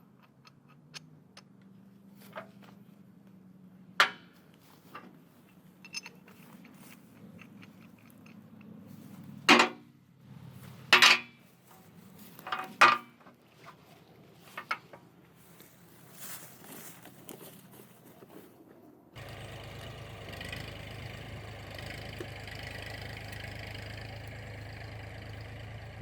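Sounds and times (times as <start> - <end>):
sharp knocks and clanks: 9.5 - 9.8, 10.9 - 11.4.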